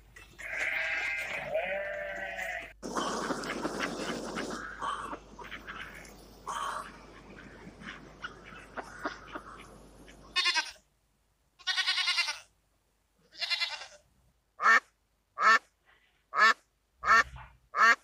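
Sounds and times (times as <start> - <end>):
goats bleating: 0.4 - 3.6, 10.3 - 10.8, 11.6 - 12.5, 13.3 - 14.0
duck quacking: 2.8 - 10.8, 14.6 - 15.7, 16.3 - 18.0.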